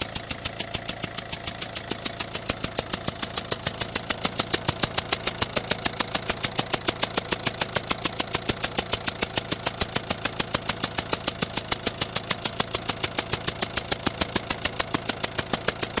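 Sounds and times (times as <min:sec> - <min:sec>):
diesel engine idling: 0:00.0 - 0:16.0
sharp regular engine tick: 0:00.0 - 0:16.0.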